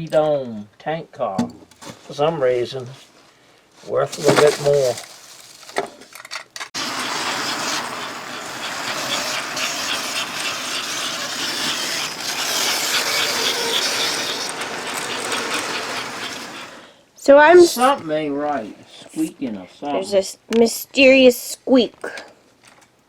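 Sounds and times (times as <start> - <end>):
toy train motor and wheel rattle: 4.1 - 16.9
toy train squeak: 6.8 - 16.8.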